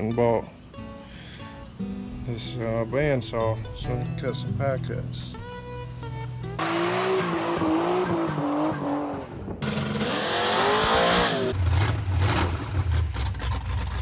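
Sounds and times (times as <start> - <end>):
swooping engine pitch: 6.6 - 13.9
tires squealing: 6.6 - 13.9.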